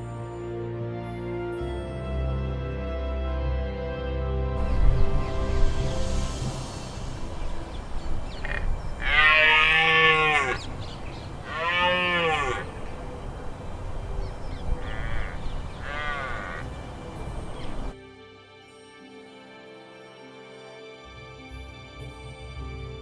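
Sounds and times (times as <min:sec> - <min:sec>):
deer stag bellowing: 0:08.2 - 0:17.9.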